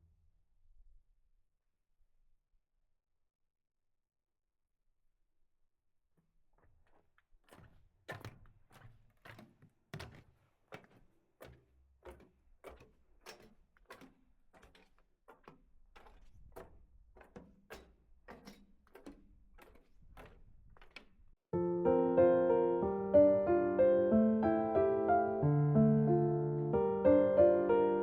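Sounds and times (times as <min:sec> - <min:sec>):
footsteps on snowy trail: 0:06.7 - 0:17.5.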